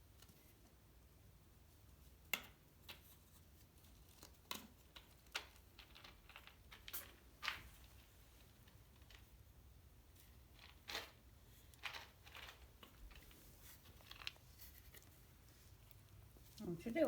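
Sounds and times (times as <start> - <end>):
kittens scratching: 2.8 - 17.0.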